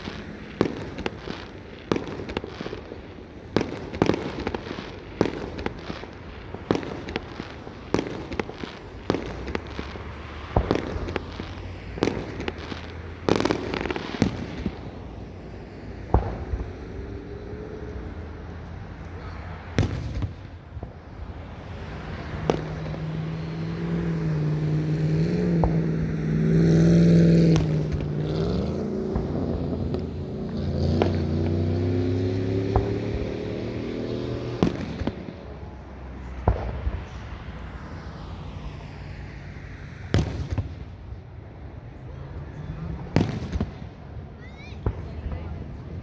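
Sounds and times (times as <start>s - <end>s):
distant fireworks bangs: 0.0s - 38.2s, 40.0s - 46.0s
vehicle engine passing: 0.0s - 46.0s.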